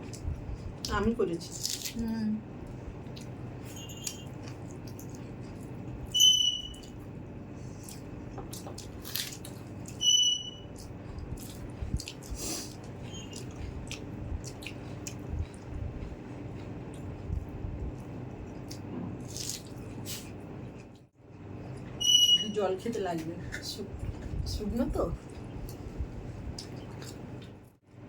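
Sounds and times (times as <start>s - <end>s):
room hum: 0.0s - 28.0s
chewing and fingers on plate: 3.0s - 22.0s, 25.2s - 27.7s
short high squeaks: 6.1s - 6.9s, 10.0s - 10.8s, 22.0s - 22.6s.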